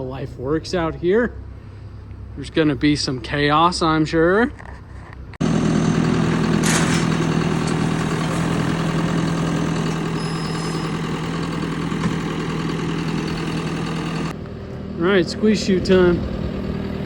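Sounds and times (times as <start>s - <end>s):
vehicle engine idling: 5.4s - 17.0s.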